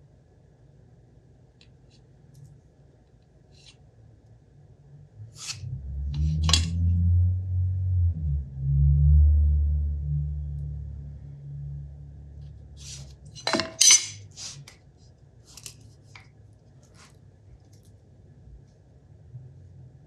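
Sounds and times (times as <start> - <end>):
metal parts clinking: 13.3 - 14.2.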